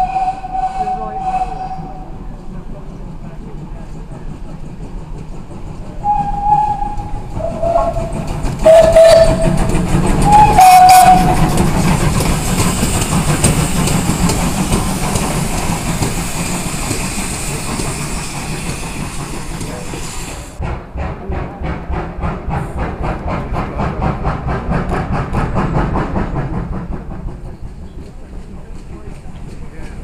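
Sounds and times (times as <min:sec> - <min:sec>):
steam locomotive whistle blasts: 0:00.0 - 0:02.1, 0:06.0 - 0:08.0, 0:08.6 - 0:09.5, 0:10.2 - 0:11.4
hiss of escaping steam: 0:10.2 - 0:20.6.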